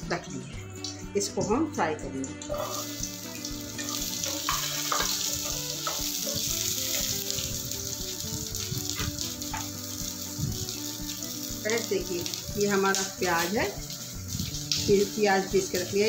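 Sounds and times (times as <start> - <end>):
onion sizzling in a frying pan: 2.4 - 16.0.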